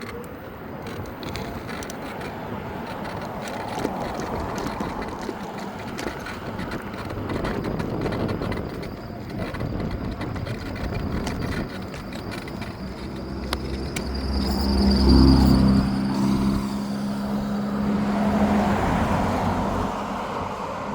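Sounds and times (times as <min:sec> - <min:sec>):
rushing wind: 0:00.0 - 0:20.9
scooter road noise: 0:00.0 - 0:20.9
low hum: 0:12.0 - 0:19.8.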